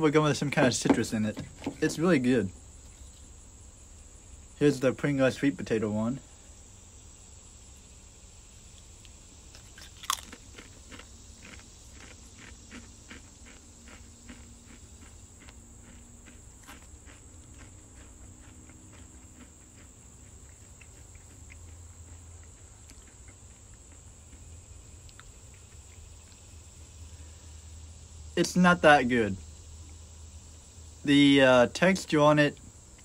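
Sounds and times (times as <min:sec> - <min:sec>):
potato crisp crunching: 0:08.7 - 0:26.8.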